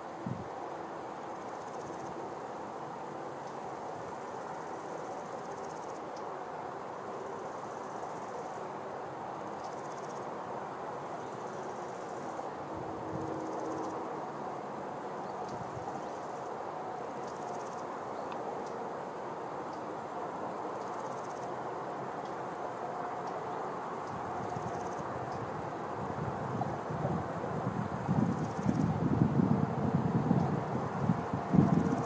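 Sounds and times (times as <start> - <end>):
wind: 0.0 - 32.0
insects trilling: 0.1 - 32.0.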